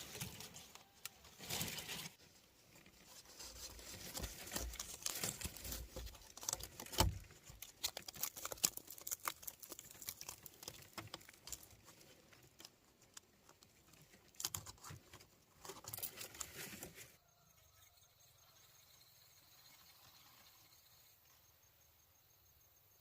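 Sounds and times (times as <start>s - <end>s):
hands handling dry materials: 0.0s - 17.2s.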